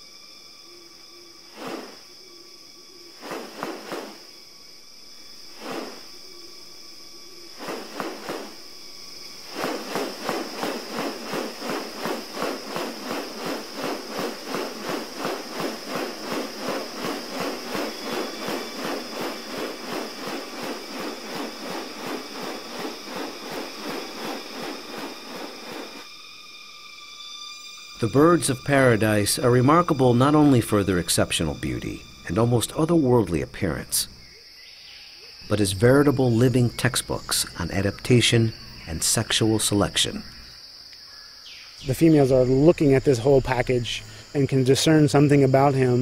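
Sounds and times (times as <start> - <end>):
high-pitched insect drone: 0.0 - 46.0
rustling swishes: 1.5 - 2.0, 3.2 - 4.3, 5.5 - 6.1, 7.5 - 8.6, 9.3 - 26.1
rasping pulses: 7.5 - 26.1.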